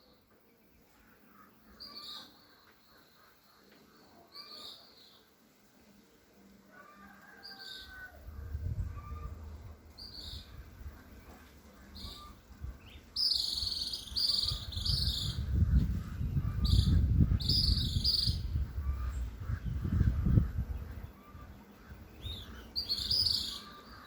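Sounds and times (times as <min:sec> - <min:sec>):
bird calling: 0:16.4 - 0:24.0.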